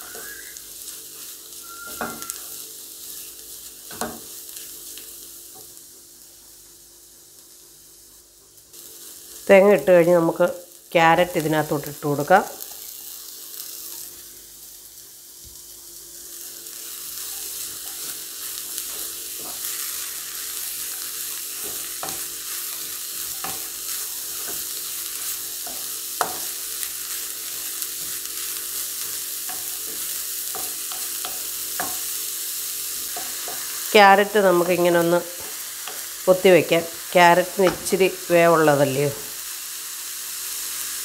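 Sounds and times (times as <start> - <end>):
vegetables sizzling in oil: 0.0 - 41.0.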